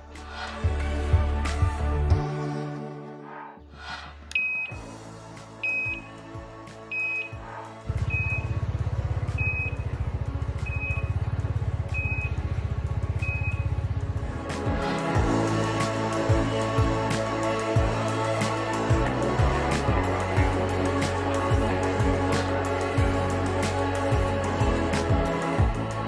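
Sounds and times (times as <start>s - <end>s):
background music with heavy beat: 0.0s - 26.0s
short high electronic beep: 4.4s - 4.8s, 5.6s - 6.0s, 6.9s - 7.4s, 8.0s - 8.6s, 11.9s - 12.4s, 13.2s - 13.7s.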